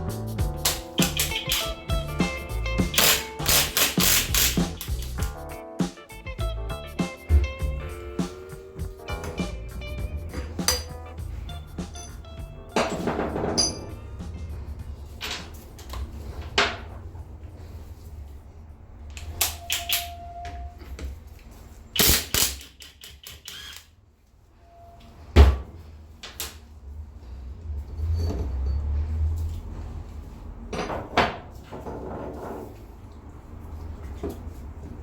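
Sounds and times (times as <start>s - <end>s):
tools and metal parts clicking: 0.6s - 2.0s, 2.9s - 5.2s, 10.3s - 11.0s, 11.8s - 14.5s, 15.1s - 16.9s, 19.1s - 20.6s, 21.4s - 23.9s
short metallic rings: 11.9s - 14.2s.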